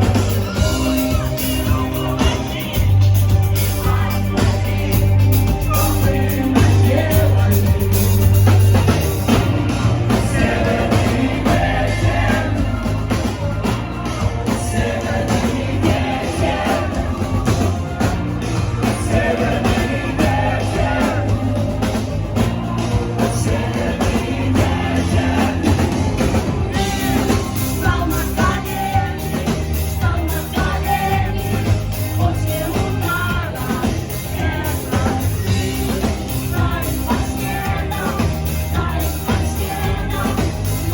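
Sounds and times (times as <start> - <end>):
band with heavy bass: 0.0 - 40.9
woman singing: 26.7 - 40.9.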